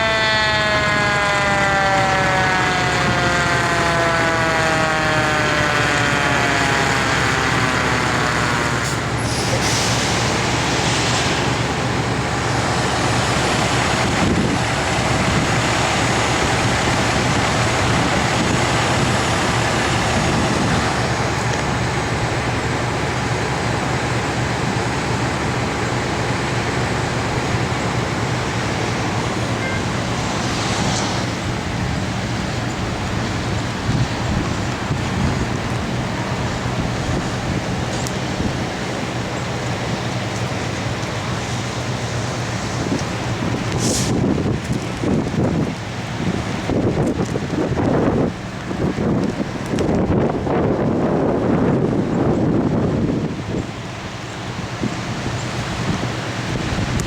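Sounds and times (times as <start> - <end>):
whine sliding downward: 0.0 - 22.0, 27.1 - 44.9
high wind roaring: 0.0 - 57.0.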